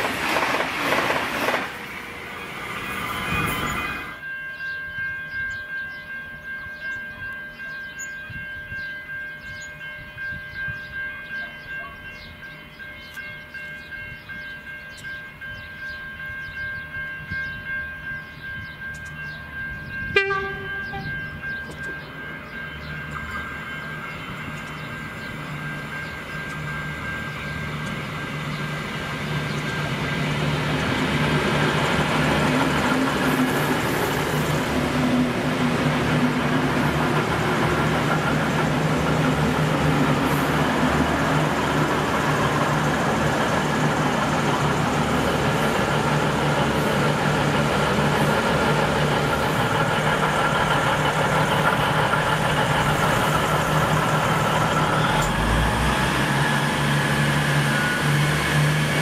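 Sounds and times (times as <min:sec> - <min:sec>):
train passing at speed: 0:00.0 - 0:59.0
pulsing ringing bell: 0:04.1 - 0:32.9
short sharp horn blast: 0:20.2 - 0:21.2.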